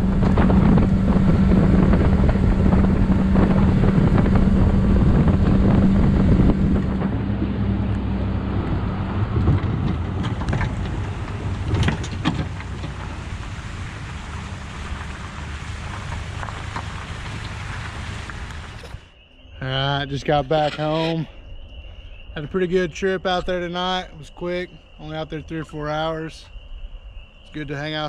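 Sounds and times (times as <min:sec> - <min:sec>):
outboard motor running: 0:00.0 - 0:19.0
wind buffeting microphone: 0:00.0 - 0:19.0.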